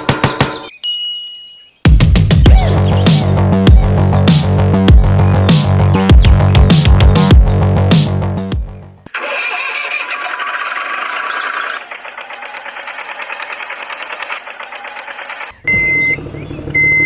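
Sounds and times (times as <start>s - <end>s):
small engine starting and running: 9.1s - 15.5s.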